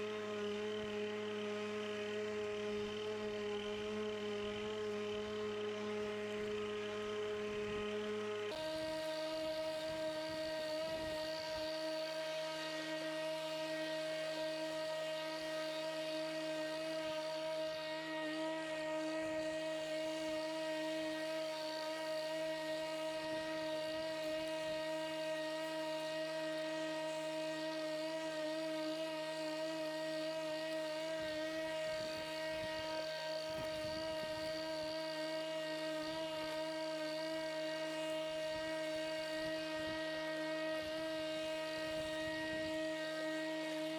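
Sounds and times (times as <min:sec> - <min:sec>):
electric lawnmower motor whine: 0:00.0 - 0:43.9.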